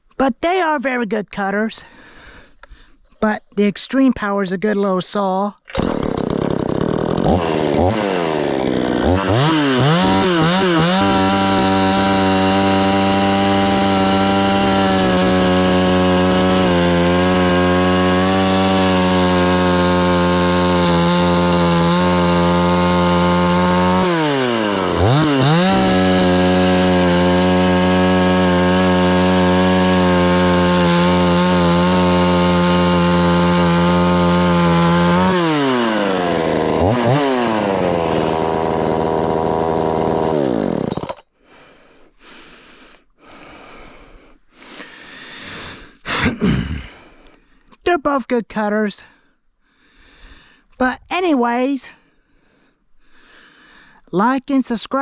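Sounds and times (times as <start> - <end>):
chainsaw cutting wood: 5.7 - 41.3.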